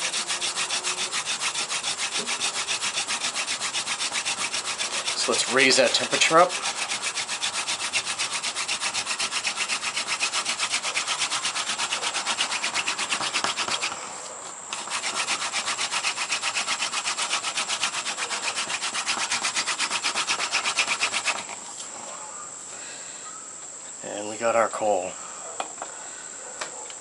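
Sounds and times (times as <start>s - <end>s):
hand drill spindle rubbing: 0.0s - 14.1s, 14.7s - 21.6s.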